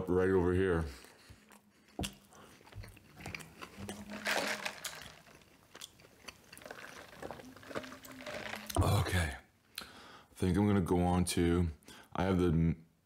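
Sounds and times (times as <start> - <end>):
person chewing food: 0.9 - 9.0.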